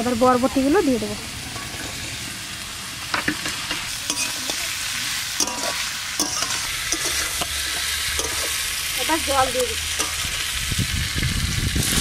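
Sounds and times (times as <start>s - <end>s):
food frying in hot oil: 0.0s - 12.0s
metal spatula scraping a pan: 1.4s - 2.3s, 3.2s - 10.5s.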